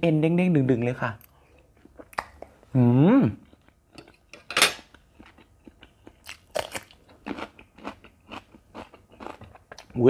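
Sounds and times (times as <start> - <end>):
person chewing: 1.2 - 2.6, 3.4 - 10.0
wet mouth clicks: 2.0 - 2.5.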